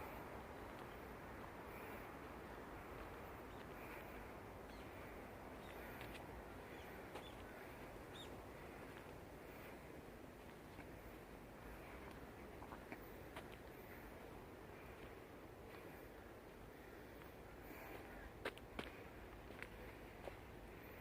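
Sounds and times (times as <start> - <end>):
faint bird calls: 3.4 - 9.7.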